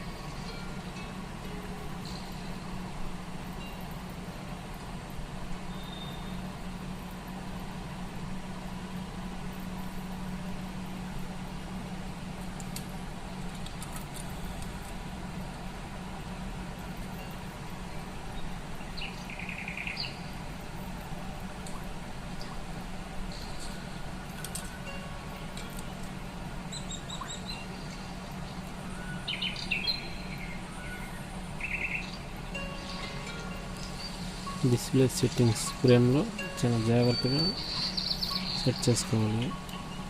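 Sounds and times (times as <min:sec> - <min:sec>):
low background hum: 0:00.0 - 0:40.0.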